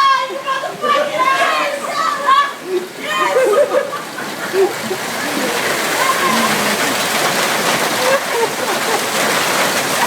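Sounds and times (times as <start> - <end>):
hail striking the ground: 4.2 - 10.0.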